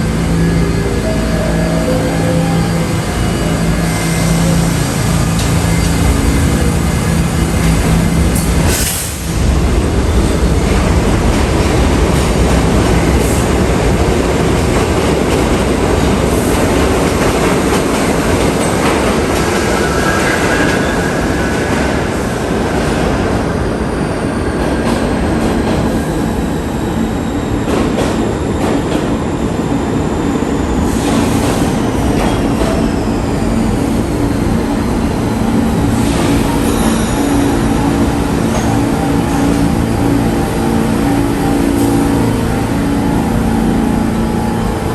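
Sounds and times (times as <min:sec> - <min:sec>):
subway train rumbling on track: 0:00.0 - 0:44.9.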